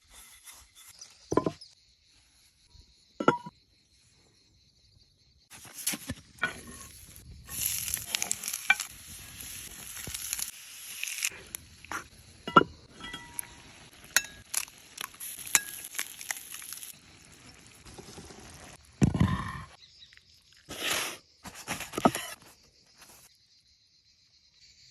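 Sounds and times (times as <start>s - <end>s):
food sizzling in a pan: 5.5s - 19.0s.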